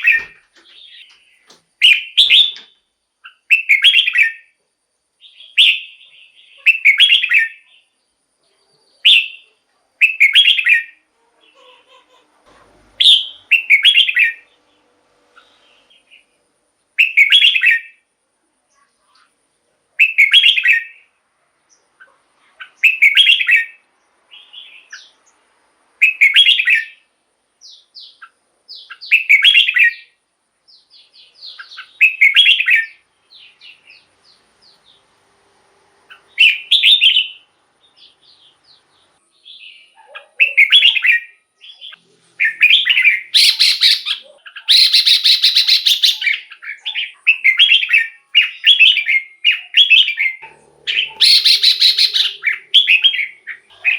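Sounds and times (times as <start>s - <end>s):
bird singing bright phrases: 0.0s - 12.1s, 12.8s - 19.4s, 20.0s - 35.3s, 35.9s - 53.9s
harsh buzzy bird call: 36.0s - 38.2s, 39.5s - 53.9s.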